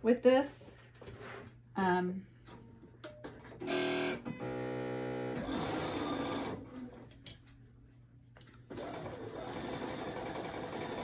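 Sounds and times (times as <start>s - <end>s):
sewing machine stitching: 3.6s - 7.0s, 8.7s - 11.0s.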